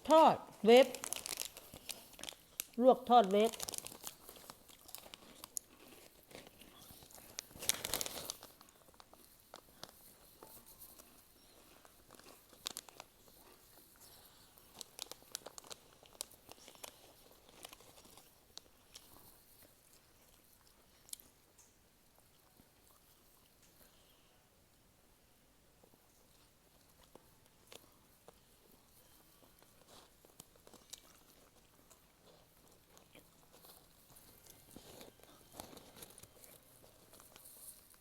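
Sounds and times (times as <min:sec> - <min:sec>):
plastic packet crinkling: 0:00.0 - 0:10.2, 0:10.9 - 0:19.4, 0:32.6 - 0:38.0
crunchy snack chewing: 0:00.7 - 0:21.4, 0:26.3 - 0:38.0.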